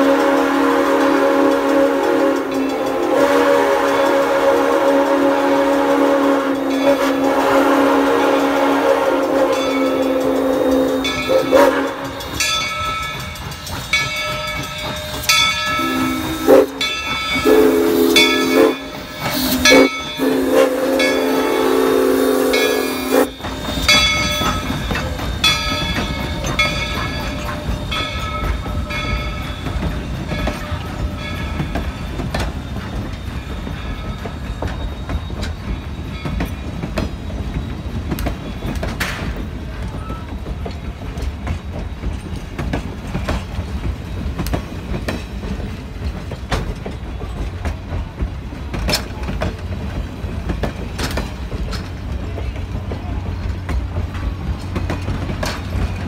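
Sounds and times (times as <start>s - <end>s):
wheel clicks over rail joints: 23.3s - 56.0s.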